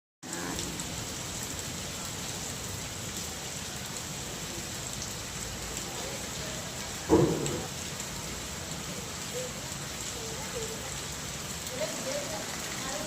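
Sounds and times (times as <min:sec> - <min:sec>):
rain hissing: 0:00.2 - 0:13.0
raindrop ticks: 0:07.1 - 0:08.2.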